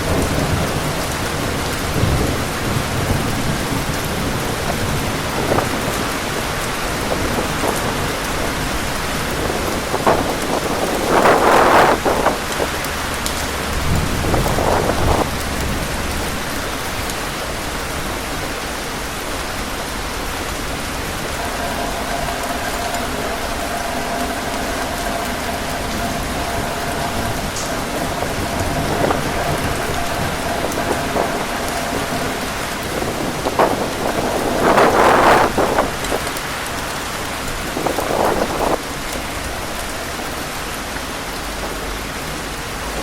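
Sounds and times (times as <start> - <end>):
heavy rain falling: 0.0 - 43.0
low rumble: 20.8 - 36.4.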